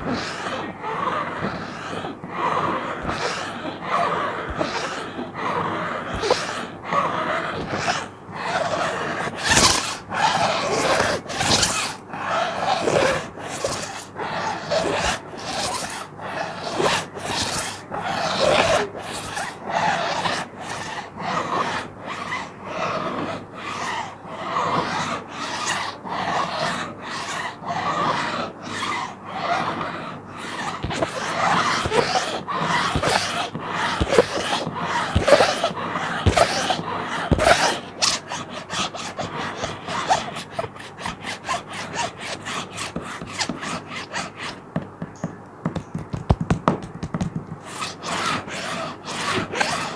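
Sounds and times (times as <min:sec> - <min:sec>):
plastic sheet being scratched: 0:00.0 - 0:49.9.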